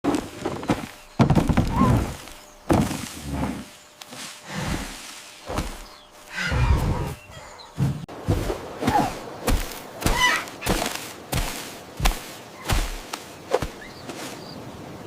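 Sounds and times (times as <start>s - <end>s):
dull heavy thuds: 0.1s - 3.8s, 4.5s - 6.0s.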